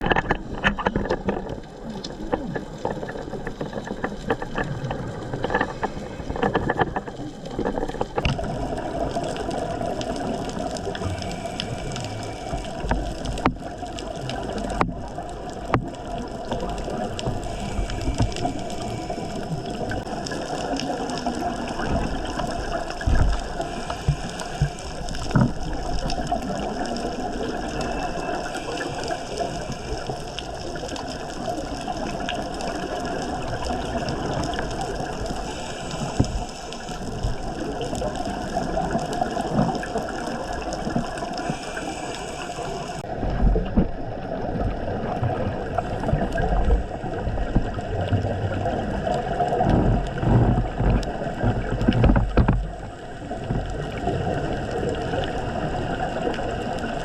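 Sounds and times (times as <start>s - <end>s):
water gurgling: 0.0s - 57.0s
steady hum: 10.9s - 13.6s, 16.8s - 38.1s.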